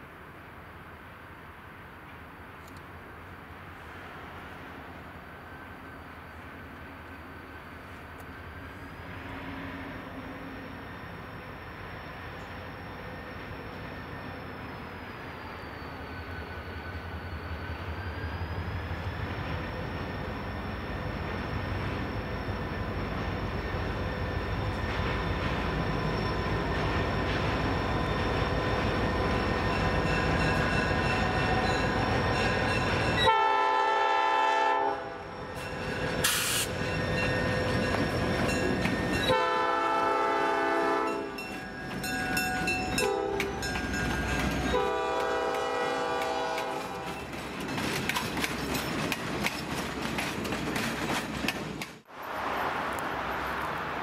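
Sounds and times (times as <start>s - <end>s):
diesel locomotive engine and wheels: 0.0s - 54.0s
train horn blasts: 33.2s - 35.3s, 39.2s - 41.4s, 43.0s - 43.7s, 44.7s - 47.2s.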